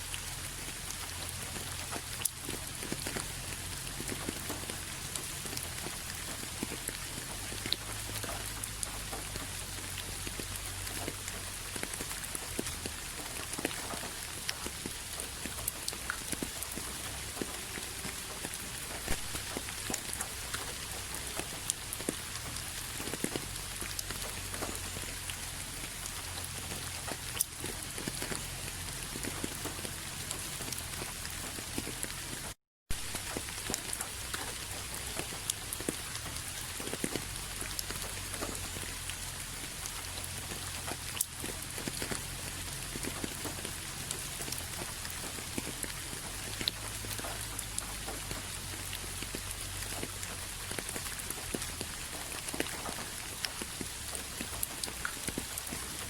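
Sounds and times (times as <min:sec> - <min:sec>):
rain hissing: 0:00.0 - 0:56.0
raindrops ticking: 0:00.0 - 0:56.0.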